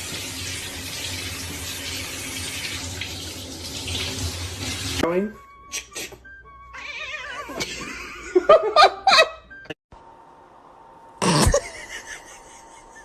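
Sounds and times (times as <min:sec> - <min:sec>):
person laughing in bursts: 0:07.6 - 0:09.4, 0:11.2 - 0:13.0.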